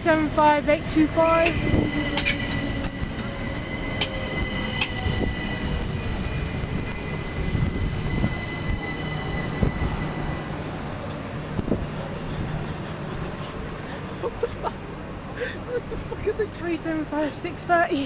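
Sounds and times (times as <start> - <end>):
train wheels rumbling on rail: 0.0 - 18.0
thin high tone: 1.0 - 11.6.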